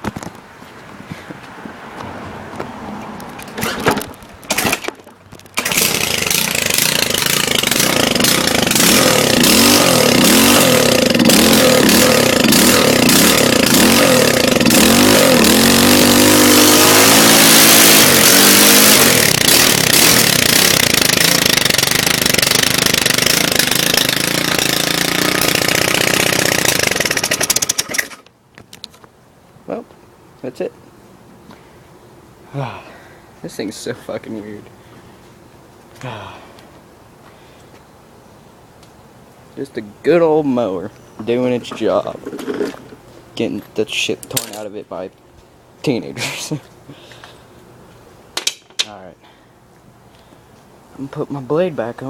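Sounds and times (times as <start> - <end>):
lawn mower engine revving: 3.4 - 28.3, 41.2 - 44.7.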